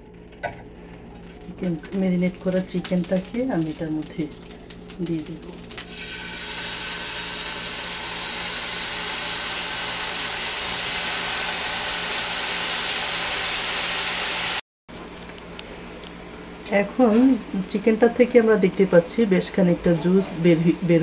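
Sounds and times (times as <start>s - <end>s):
chicken sizzling on a grill pan: 4.9s - 14.6s.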